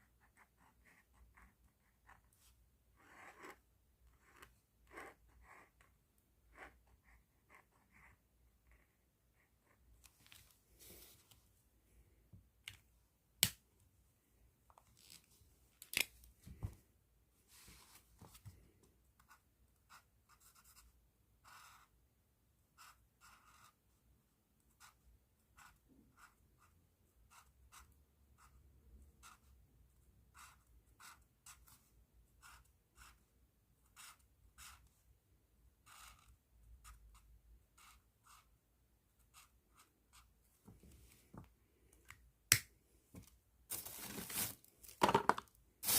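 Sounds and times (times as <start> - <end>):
pen scratching on paper: 0.0 - 9.8, 19.2 - 21.9, 22.8 - 23.8, 24.8 - 28.6, 30.3 - 31.8, 32.4 - 33.2, 33.8 - 34.9, 35.8 - 38.6, 39.2 - 40.3.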